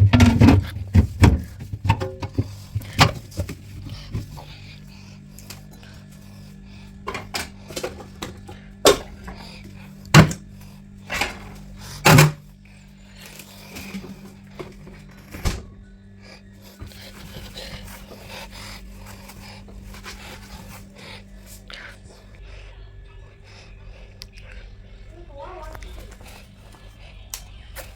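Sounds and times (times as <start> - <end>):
containers knocking and clattering: 0.0 - 4.4, 7.0 - 10.4
low hum: 0.0 - 27.9.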